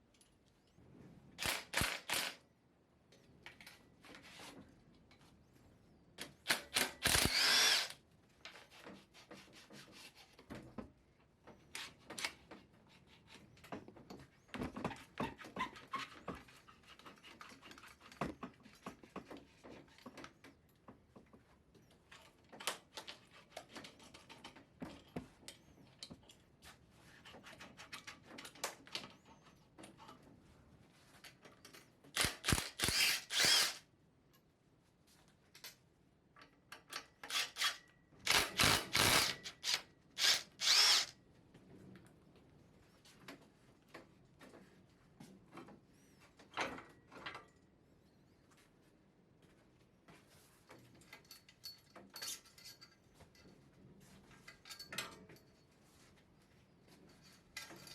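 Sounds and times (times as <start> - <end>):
power drill running: 1.4 - 2.4, 6.8 - 8.0, 32.2 - 33.8, 37.3 - 41.1
tools clicking and knocking: 1.4 - 2.4, 31.3 - 34.4, 36.4 - 41.1.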